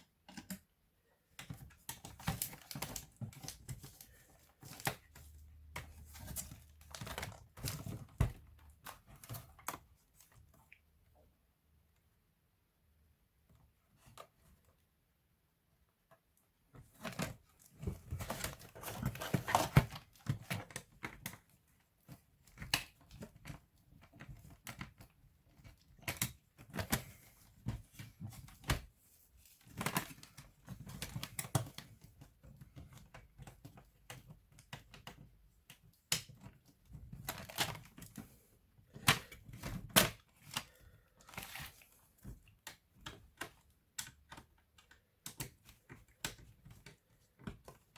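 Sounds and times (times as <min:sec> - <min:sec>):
clicks and scraping on plastic case: 0:16.8 - 0:28.9.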